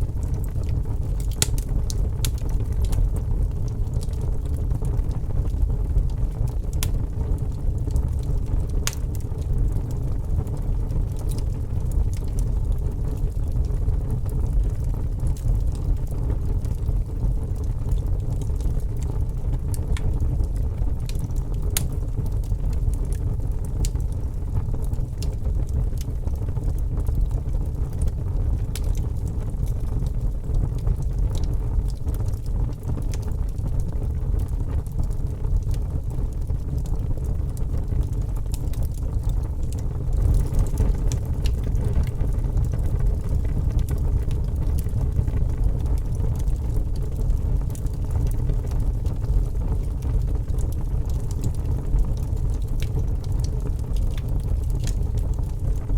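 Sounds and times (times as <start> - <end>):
fire crackling: 0.0 - 55.9.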